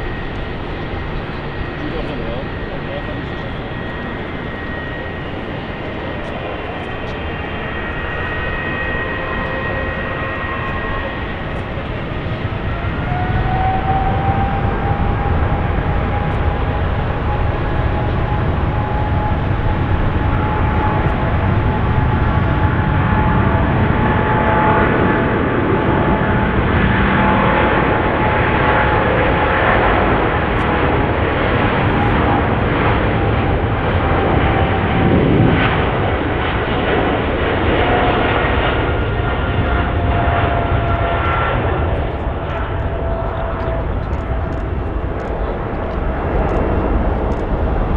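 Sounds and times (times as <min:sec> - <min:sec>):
jet engines rumbling and whining: 0:00.0 - 0:47.9.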